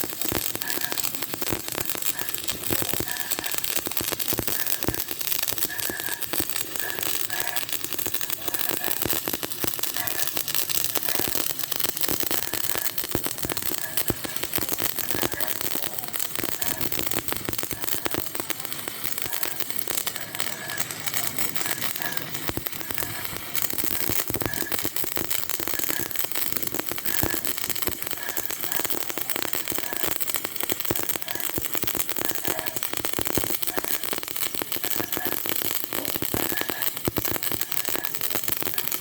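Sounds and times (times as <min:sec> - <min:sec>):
arc welding crackling: 0:00.0 - 0:39.0.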